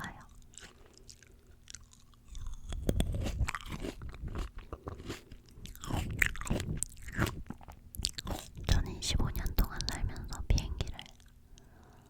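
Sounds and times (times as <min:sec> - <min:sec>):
wet crunchy chewing: 0:00.2 - 0:08.8.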